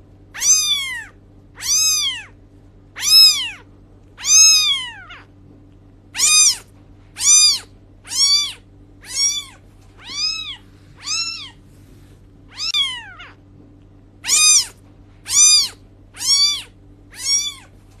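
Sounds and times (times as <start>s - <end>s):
steady low hum: 0.0s - 18.0s
cat meowing: 0.4s - 2.4s, 3.0s - 5.3s, 6.2s - 11.6s, 12.5s - 13.4s, 14.2s - 17.7s.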